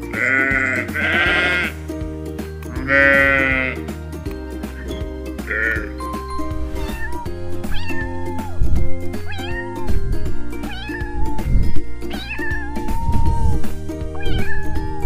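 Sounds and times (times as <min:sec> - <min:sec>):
background music: 0:00.0 - 0:15.0
cat meowing: 0:06.8 - 0:08.6, 0:09.2 - 0:10.0, 0:10.6 - 0:15.0.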